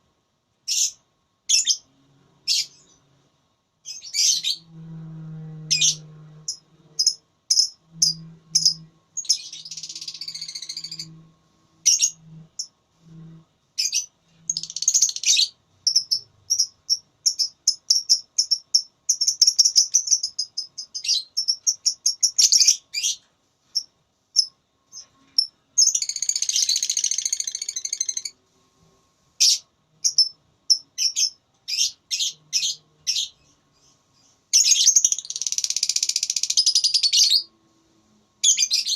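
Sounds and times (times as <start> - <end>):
bird chattering song: 0.7 - 1.9, 3.8 - 4.7, 5.7 - 11.2, 11.8 - 12.7, 13.8 - 23.2, 23.8 - 28.4, 29.4 - 37.5.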